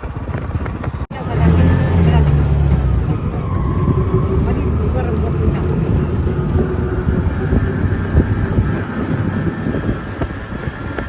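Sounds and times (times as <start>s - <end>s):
motor vehicle running: 0.0s - 11.0s.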